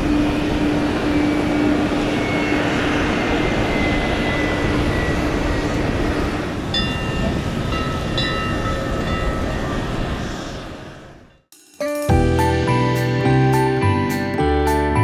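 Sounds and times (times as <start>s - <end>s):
jet engines rushing: 0.0s - 8.1s
held high tones: 11.5s - 15.0s.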